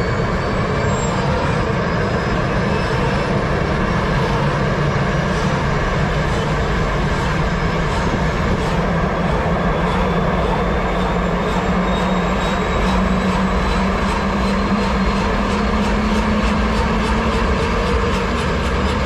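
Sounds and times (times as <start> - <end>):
helicopter turbine and rotor noise: 0.0 - 19.0.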